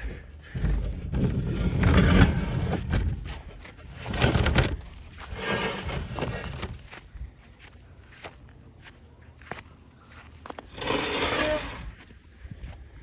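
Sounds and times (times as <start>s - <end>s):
glass table scraping over snow: 1.0s - 3.0s, 4.0s - 6.7s, 10.7s - 11.9s.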